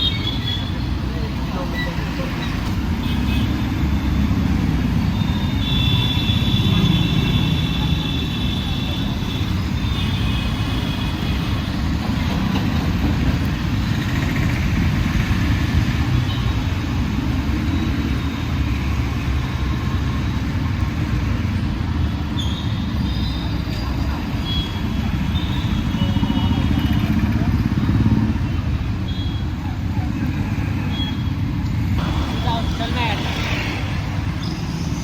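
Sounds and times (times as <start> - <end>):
traffic rumble: 0.0 - 35.0.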